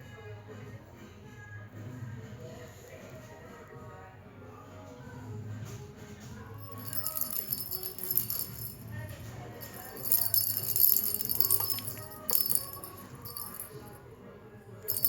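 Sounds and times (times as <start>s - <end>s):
cat toy jingling: 6.6s - 14.0s.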